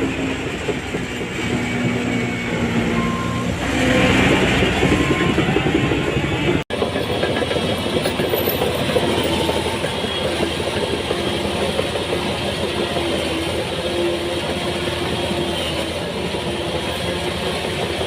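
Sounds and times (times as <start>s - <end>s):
diesel earthmoving machinery running: 0.0s - 18.0s
rattling clatter: 6.7s - 14.5s.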